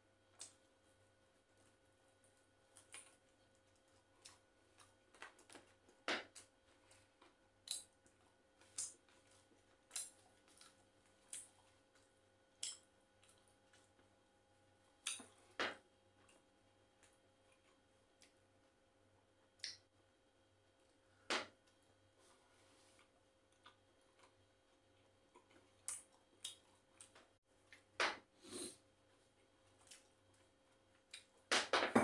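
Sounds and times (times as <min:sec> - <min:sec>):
person chewing with mouth open: 0:02.7 - 0:14.0, 0:23.0 - 0:27.9.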